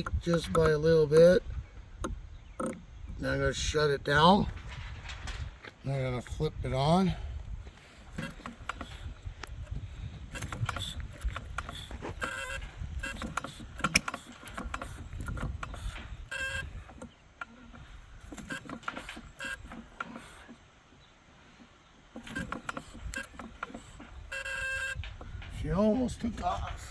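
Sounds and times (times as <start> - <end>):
single-cylinder engine starting: 10.3 - 20.6.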